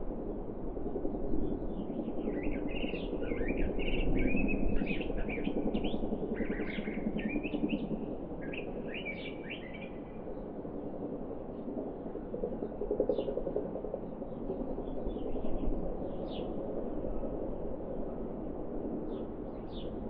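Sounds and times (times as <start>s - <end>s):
songbird twittering: 2.2s - 7.8s, 8.4s - 10.0s.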